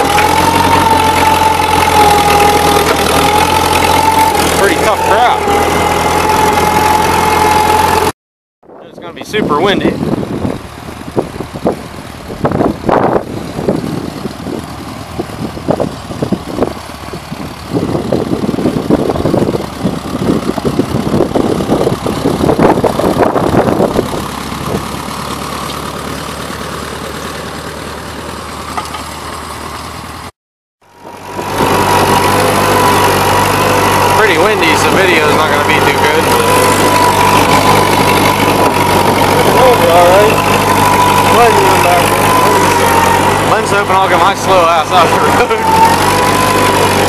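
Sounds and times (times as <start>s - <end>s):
tractor engine idling: 0.0s - 8.1s, 8.8s - 30.3s, 30.9s - 47.0s
wind buffeting microphone: 8.7s - 25.0s.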